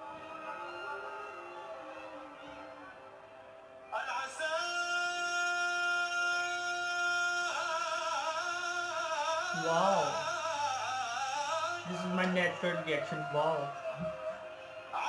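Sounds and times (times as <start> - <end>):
man singing ornamented melody: 3.9 - 15.0.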